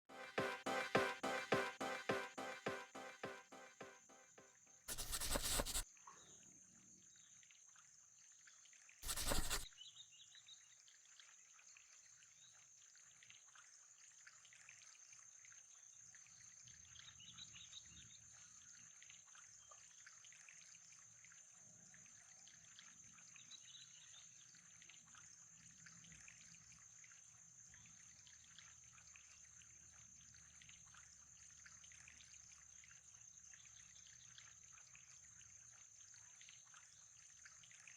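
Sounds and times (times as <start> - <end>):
faint trickling water: 9.8 - 37.9.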